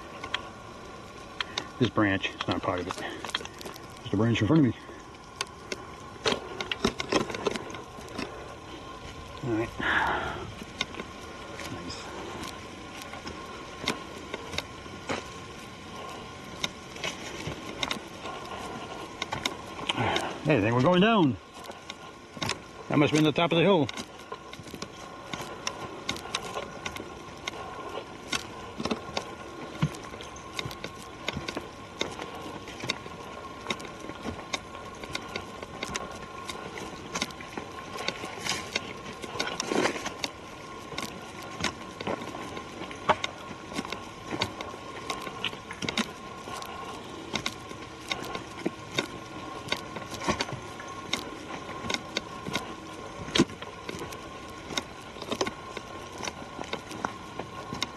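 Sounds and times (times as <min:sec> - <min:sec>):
footsteps on forest trail: 0:00.0 - 0:57.9.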